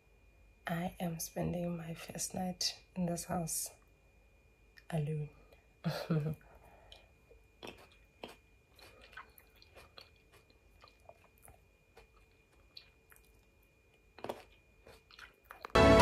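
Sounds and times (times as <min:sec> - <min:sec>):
faint steady high tone: 0:00.0 - 0:07.6
chewing grapes: 0:06.7 - 0:15.8.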